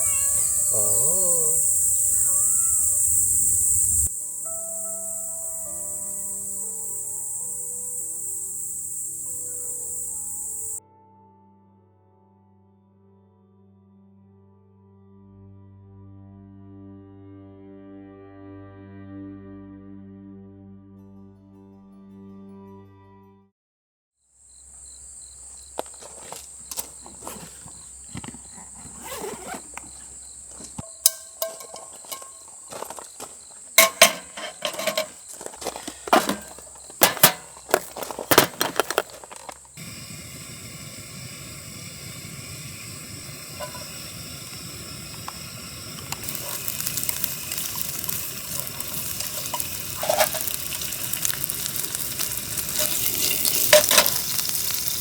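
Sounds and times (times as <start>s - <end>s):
even hiss: 0.0s - 10.8s, 25.1s - 55.0s
food sizzling in a pan: 0.0s - 10.8s, 25.5s - 55.0s
high insect trill: 0.0s - 10.8s, 24.4s - 55.0s
utensils and cookware clinking: 26.1s - 39.7s, 43.5s - 44.0s, 46.1s - 55.0s.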